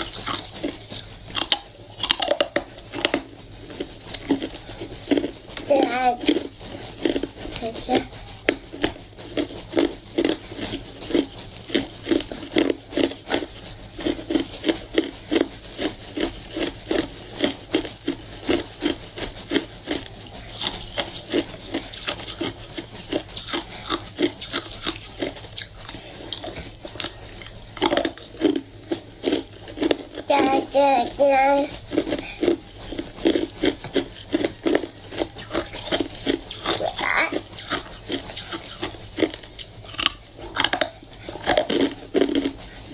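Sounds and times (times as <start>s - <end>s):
ice being chewed: 0.0s - 42.9s.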